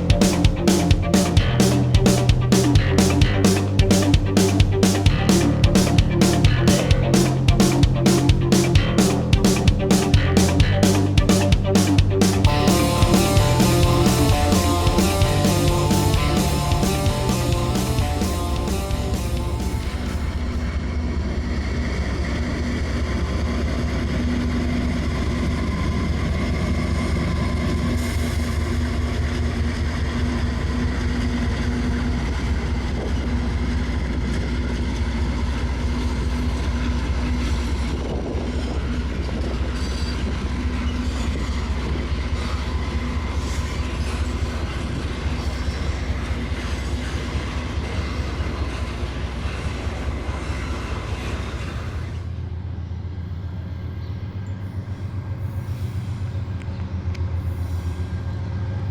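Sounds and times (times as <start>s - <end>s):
locomotive engine hum: 0.0s - 20.9s
diesel train rumbling: 0.0s - 58.9s.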